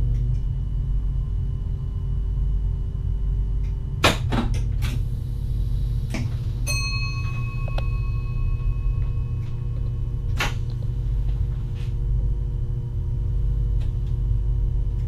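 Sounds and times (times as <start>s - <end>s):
train rumble: 4.2s - 15.0s
bell-like tone: 6.7s - 10.8s.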